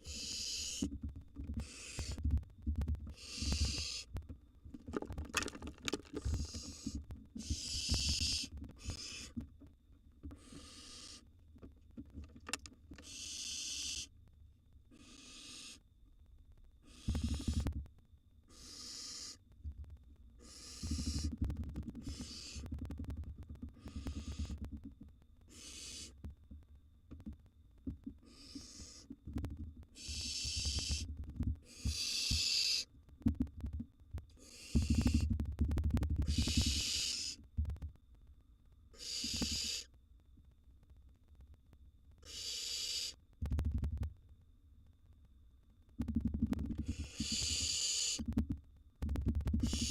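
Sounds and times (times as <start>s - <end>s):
owl chicks hissing calls: 0.0s - 1.0s, 1.6s - 2.2s, 3.1s - 4.1s, 6.2s - 9.4s, 10.3s - 11.3s, 13.0s - 14.1s, 14.9s - 15.8s, 16.8s - 17.7s, 18.5s - 19.4s, 20.4s - 21.4s, 22.0s - 22.7s, 23.8s - 24.6s, 25.5s - 26.2s, 28.2s - 29.1s, 29.9s - 32.9s, 34.4s - 35.3s, 36.2s - 37.4s, 38.9s - 39.9s, 42.2s - 43.2s, 46.8s - 48.3s, 49.6s - 49.9s.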